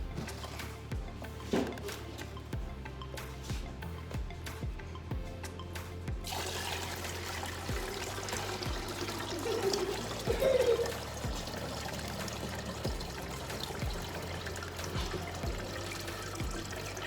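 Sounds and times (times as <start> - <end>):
water pouring and trickling: 0.0 - 2.5, 6.2 - 17.0
low water plops: 6.2 - 17.0.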